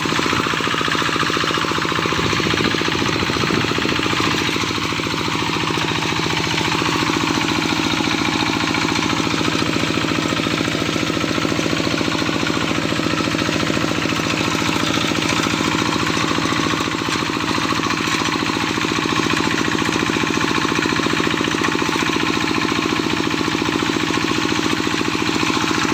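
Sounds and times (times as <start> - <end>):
small engine running with rattle: 0.0 - 25.9.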